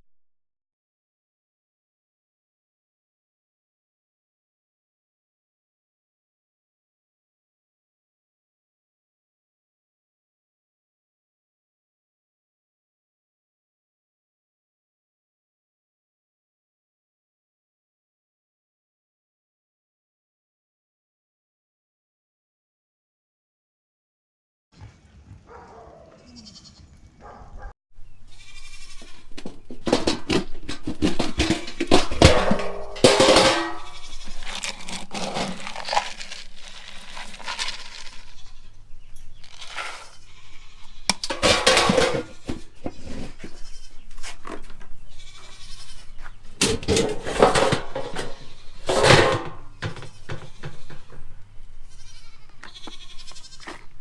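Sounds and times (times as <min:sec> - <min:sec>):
goats bleating: 0:26.0 - 0:27.1, 0:28.3 - 0:30.4, 0:31.3 - 0:35.9, 0:39.5 - 0:44.4, 0:45.0 - 0:46.5, 0:47.4 - 0:54.0.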